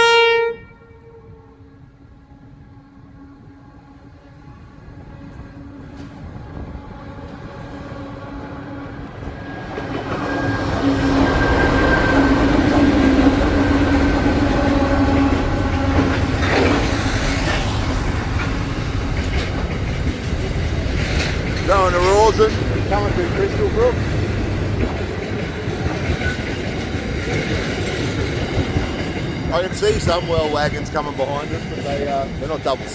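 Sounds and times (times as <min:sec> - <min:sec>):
locomotive engines droning: 0:00.9 - 0:32.9
wheels clattering on rails: 0:09.2 - 0:32.9.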